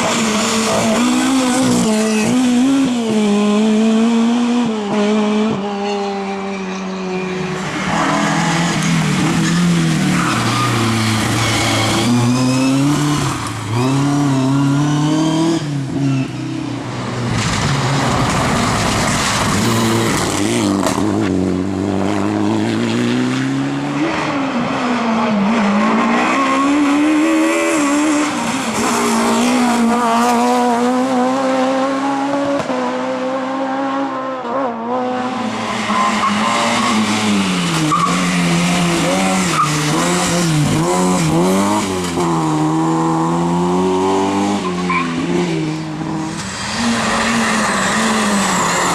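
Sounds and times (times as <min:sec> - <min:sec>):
rally car engines revving: 0:00.0 - 0:48.9
tyres squealing and skidding: 0:05.7 - 0:16.6, 0:17.4 - 0:20.7, 0:24.3 - 0:29.8, 0:35.5 - 0:42.0, 0:44.6 - 0:48.9.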